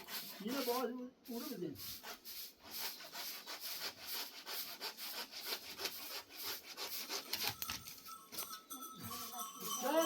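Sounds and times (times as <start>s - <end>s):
hand tool rasping wood: 0.0s - 7.8s.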